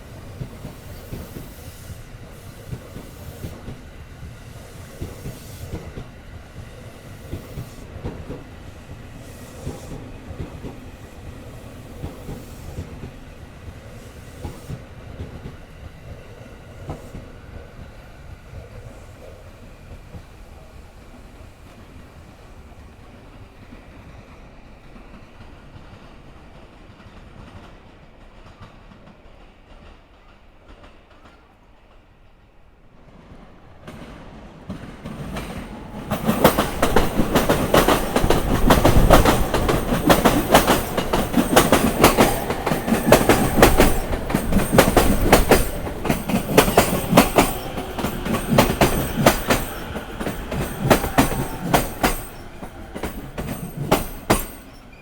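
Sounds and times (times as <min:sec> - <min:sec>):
train wheels clacking over rail joints: 0:33.8 - 0:54.9.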